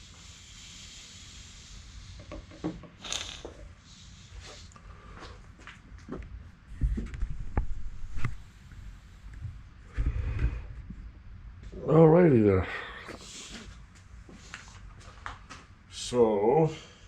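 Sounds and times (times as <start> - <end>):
low bumps and rubbing: 6.7 - 8.5.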